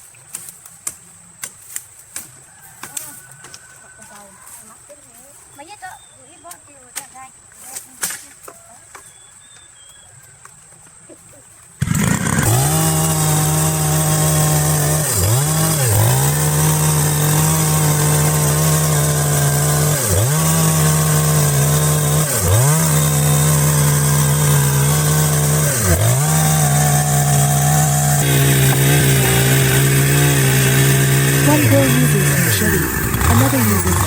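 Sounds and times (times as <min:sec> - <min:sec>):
chainsaw cutting wood: 0:11.8 - 0:34.0.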